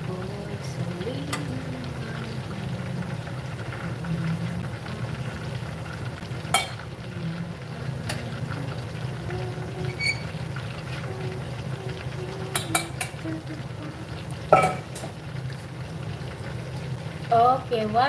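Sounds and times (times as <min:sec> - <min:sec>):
deep-frying sizzle: 0:00.0 - 0:18.0
metal spoon knocking on saucepan: 0:14.5 - 0:14.9.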